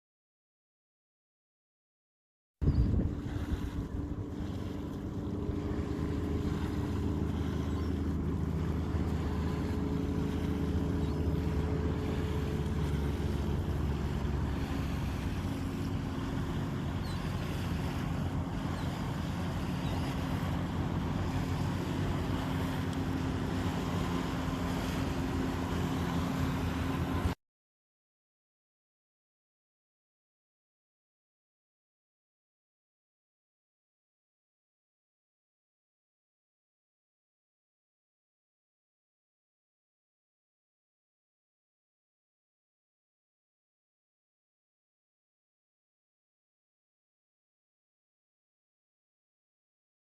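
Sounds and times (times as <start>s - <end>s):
engine humming: 2.6s - 27.4s
wind on microphone: 2.6s - 27.4s.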